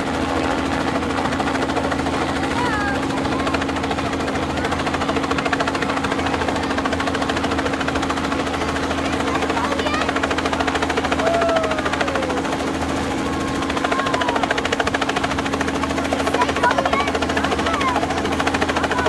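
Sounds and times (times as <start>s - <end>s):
engine and turbine drone: 0.0s - 19.0s
helicopter rotor blades chopping: 0.0s - 19.0s.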